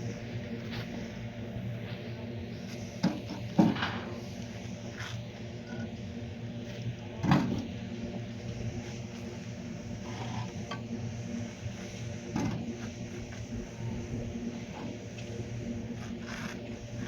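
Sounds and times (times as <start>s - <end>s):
small motor humming: 0.0s - 17.0s.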